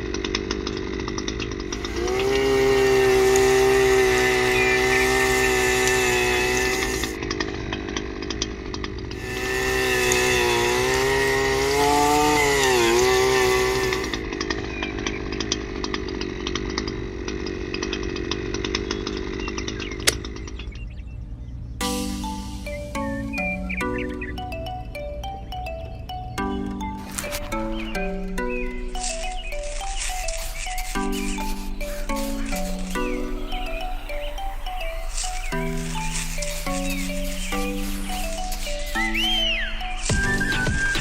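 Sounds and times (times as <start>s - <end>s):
small drill motor whining: 1.7s - 7.2s, 9.1s - 15.2s, 27.0s - 41.0s.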